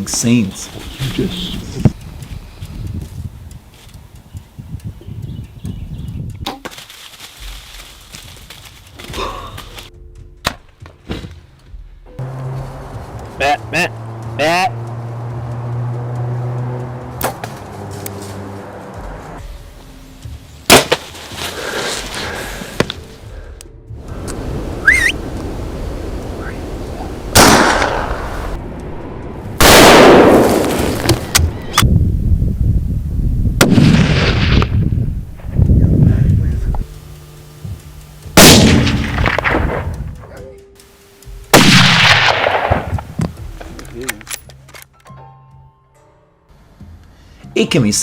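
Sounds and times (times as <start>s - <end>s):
loud gunshot: 20.7s - 21.0s, 27.4s - 28.3s, 29.6s - 30.7s, 33.6s - 34.8s, 38.4s - 39.9s, 41.5s - 43.1s.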